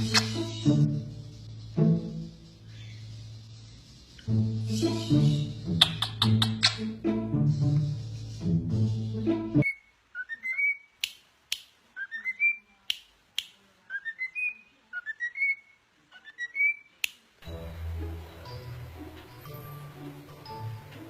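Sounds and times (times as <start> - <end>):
music: 0.0 - 9.6, 17.4 - 21.0
parrot whistling: 9.6 - 10.9.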